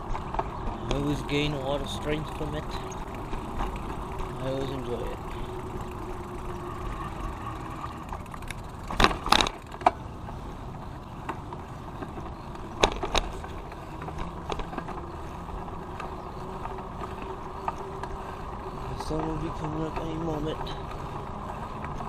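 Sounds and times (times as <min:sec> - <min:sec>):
bicycle tyres rolling: 0:00.0 - 0:22.0
sharp rattling knocks: 0:08.1 - 0:10.0, 0:11.2 - 0:18.1.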